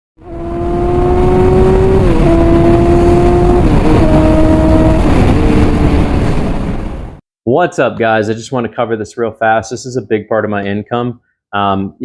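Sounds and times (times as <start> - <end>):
engine accelerating through gears: 0.2 - 6.5.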